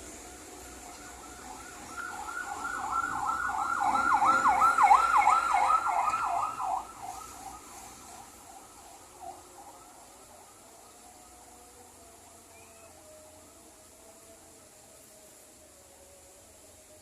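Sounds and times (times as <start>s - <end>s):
siren yelping warble: 1.9s - 6.9s.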